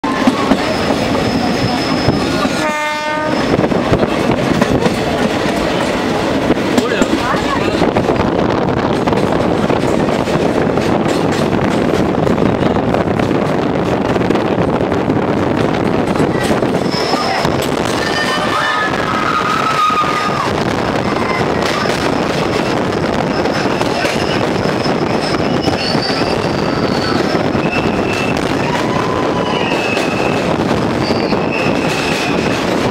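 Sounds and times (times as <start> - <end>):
train wheels on rail: 0.0 - 32.9
high wheel squeal: 0.4 - 3.7, 16.6 - 20.2, 23.2 - 32.6
train horn: 2.5 - 3.6
people shouting: 17.1 - 22.1, 27.7 - 30.3.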